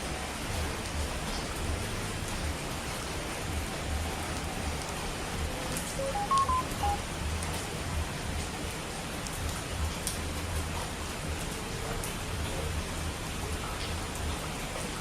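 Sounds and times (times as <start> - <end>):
steady rain: 0.0 - 15.0
electronic beeps: 6.0 - 7.0.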